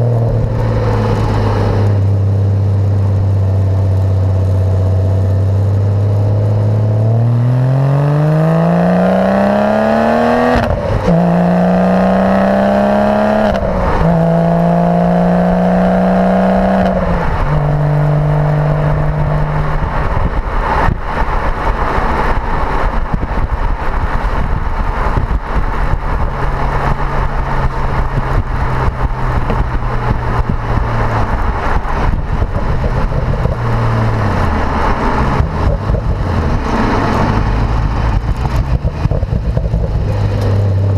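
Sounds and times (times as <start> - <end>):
road noise: 0.0 - 40.9
car accelerating through gears: 5.6 - 22.9, 26.6 - 40.9.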